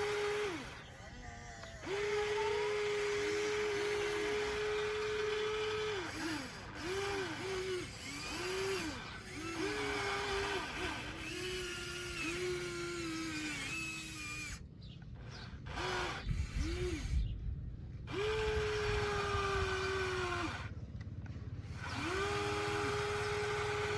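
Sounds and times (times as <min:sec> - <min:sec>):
electric motors whining: 0:00.0 - 0:17.4, 0:18.0 - 0:20.8, 0:21.6 - 0:23.9.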